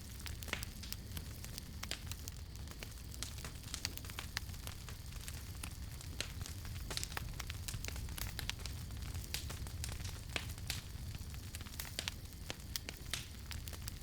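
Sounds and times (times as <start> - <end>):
burning wood crackling: 0.0 - 14.0
low rumble of flames: 0.0 - 14.0.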